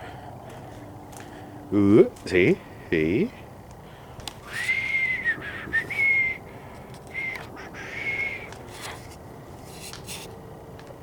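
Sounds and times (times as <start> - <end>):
high whistling tone: 4.4 - 6.5, 7.1 - 8.6.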